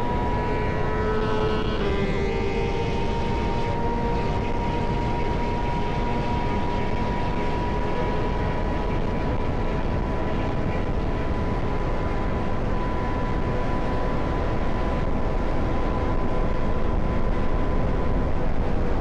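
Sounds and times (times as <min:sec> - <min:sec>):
motorcycle engine drone: 0:00.0 - 0:19.0
steady whine: 0:00.0 - 0:19.0
wind rush: 0:00.0 - 0:19.0.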